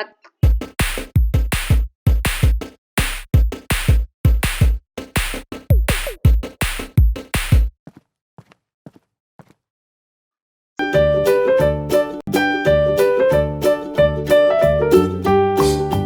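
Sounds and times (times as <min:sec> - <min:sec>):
drum machine beat with kick drum: 0:00.4 - 0:07.7.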